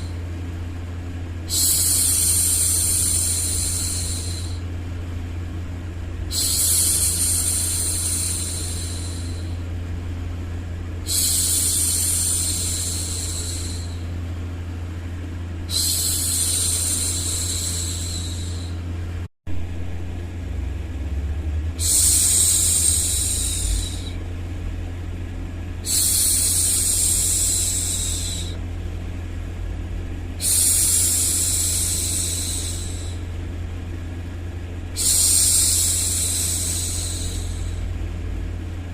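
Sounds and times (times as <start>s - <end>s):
low rumbling noise: 0.0s - 38.9s
woman shushing: 6.3s - 9.6s, 11.1s - 14.0s, 15.7s - 18.8s, 21.8s - 24.2s, 25.8s - 28.6s, 30.4s - 33.3s, 35.0s - 37.9s.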